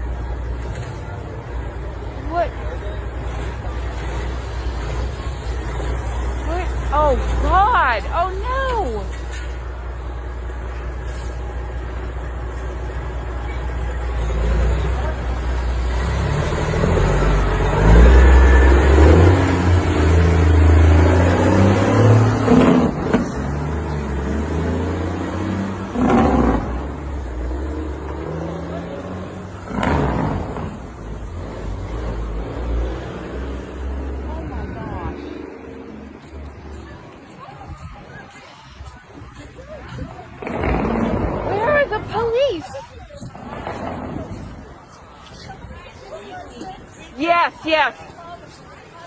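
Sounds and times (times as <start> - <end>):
vehicle engine revving: 14.0 - 34.4, 40.4 - 42.2.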